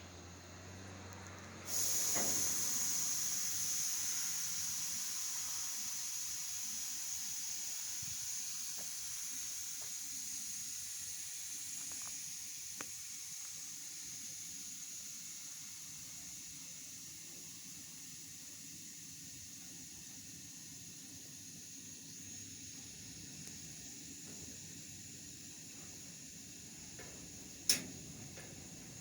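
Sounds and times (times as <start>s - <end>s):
air brake hissing: 1.6s - 11.8s, 24.0s - 29.0s
faint clicks: 26.9s - 28.7s.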